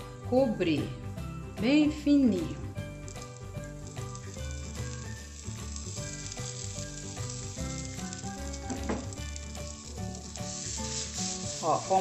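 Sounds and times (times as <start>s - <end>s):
background music: 0.0s - 12.0s
omelette sizzling in frying pan: 2.2s - 12.0s.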